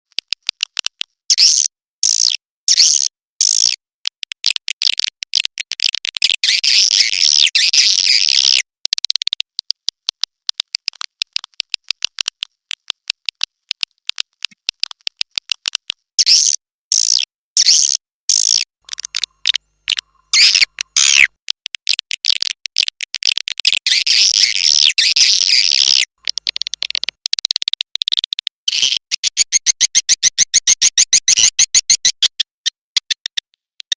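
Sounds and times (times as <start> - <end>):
swiftlet clicks and chirps: 0.1 - 33.9.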